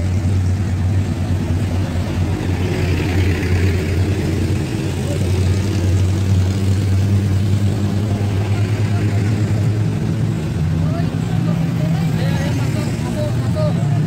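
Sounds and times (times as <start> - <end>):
passing road traffic: 0.0 - 14.0.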